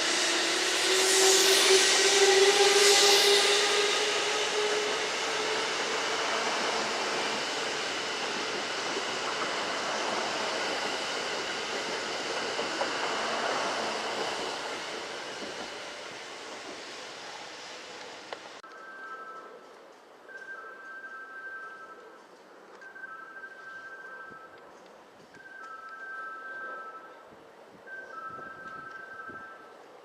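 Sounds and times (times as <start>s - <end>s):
electric train motor whine: 0.0s - 18.6s
train rushing rail noise: 0.0s - 18.6s.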